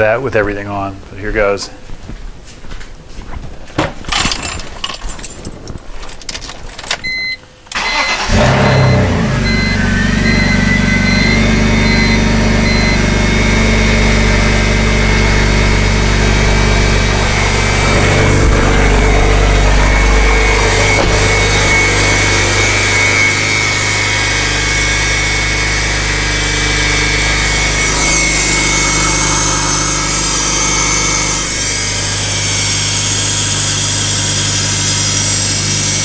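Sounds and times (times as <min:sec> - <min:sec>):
car engine cranking and idling: 0:04.2 - 0:33.6
warning chime beeping: 0:07.1 - 0:25.4, 0:26.7 - 0:31.7
air pump high whine: 0:07.1 - 0:36.0.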